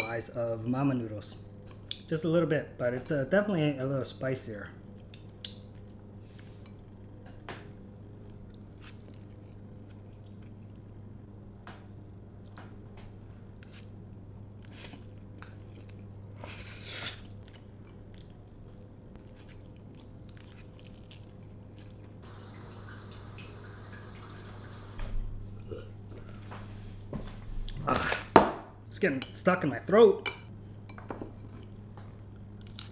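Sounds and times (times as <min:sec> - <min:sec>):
steady low hum: 0:00.0 - 0:32.9
person chewing noodles: 0:08.3 - 0:10.9, 0:13.6 - 0:22.2.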